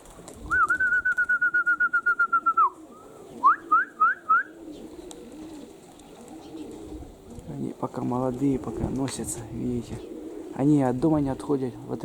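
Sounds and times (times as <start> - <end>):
pigeons cooing: 0.0 - 12.0
quick rising whistled notes: 0.5 - 2.8.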